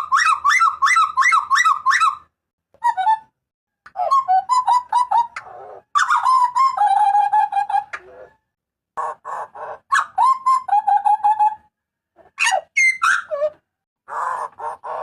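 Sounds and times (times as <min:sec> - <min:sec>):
bird calling: 0:12.4 - 0:15.0.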